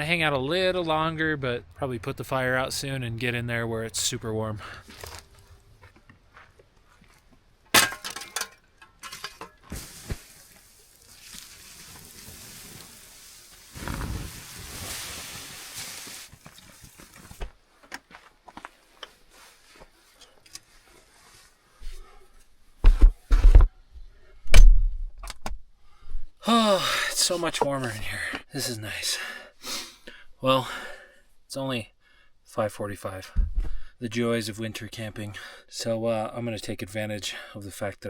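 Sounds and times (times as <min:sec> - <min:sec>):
clinks and knocks: 0:07.8 - 0:09.7
hiss of doused campfire: 0:09.7 - 0:17.5.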